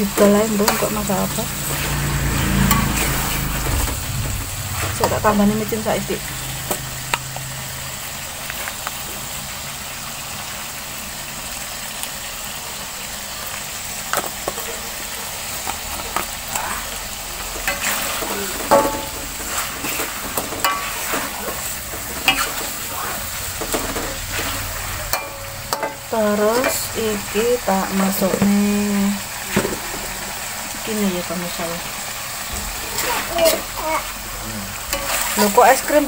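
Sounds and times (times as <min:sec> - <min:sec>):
metal spatula stirring in wok: 0:00.0 - 0:03.7, 0:15.4 - 0:26.8, 0:32.9 - 0:34.1, 0:34.8 - 0:36.0
chicken sizzling and bubbling in wok: 0:00.0 - 0:36.0.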